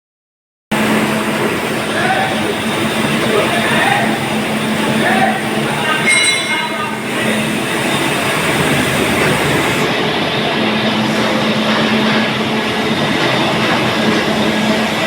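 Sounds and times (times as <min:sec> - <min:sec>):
machinery rumbling: 0:00.8 - 0:11.2.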